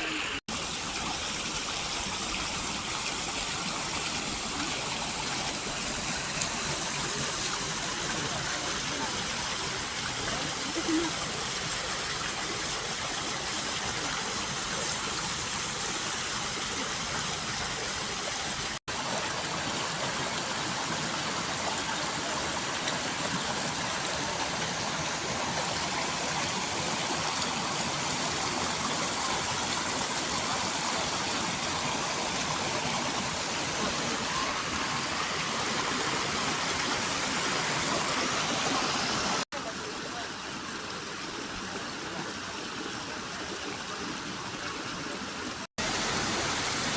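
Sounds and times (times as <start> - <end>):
stream water rushing: 0.0 - 46.9.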